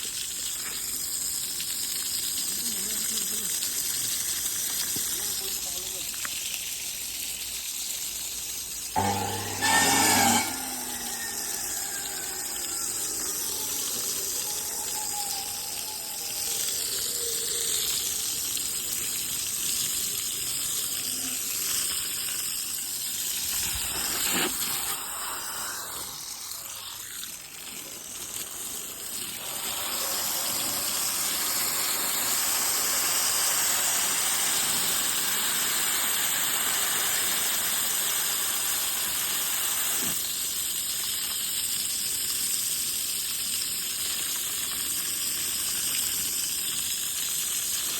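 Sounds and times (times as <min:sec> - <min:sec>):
water gushing from hose: 0:00.0 - 0:47.9
short loud burst: 0:09.0 - 0:14.1.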